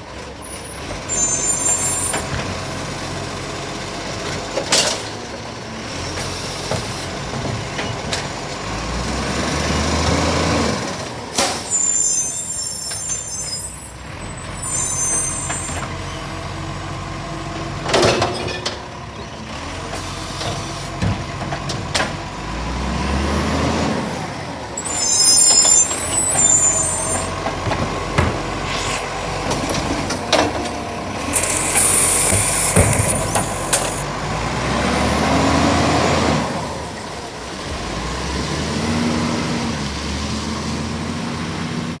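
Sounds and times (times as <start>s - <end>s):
air brake hisses: 11.4s - 15.9s, 24.8s - 27.4s, 28.4s - 30.3s, 31.2s - 34.1s
diesel engine revving: 18.9s - 42.0s.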